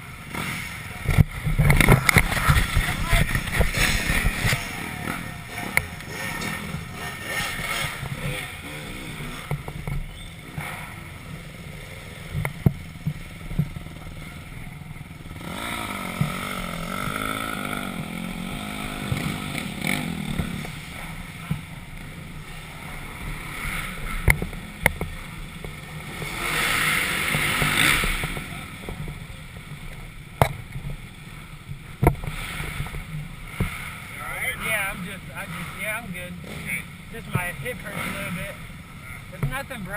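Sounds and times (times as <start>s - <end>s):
dirt bike engine running: 0.0s - 39.9s
wind noise on microphone: 1.1s - 4.7s.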